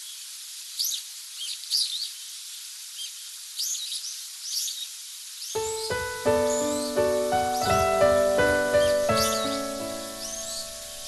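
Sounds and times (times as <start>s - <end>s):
small birds chirping: 0.0s - 11.0s
steady hiss: 0.0s - 11.0s
piano music: 5.6s - 11.0s.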